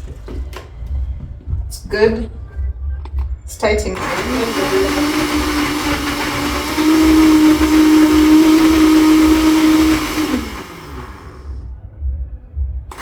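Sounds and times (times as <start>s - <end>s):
electric blender motor whine: 3.9s - 11.7s.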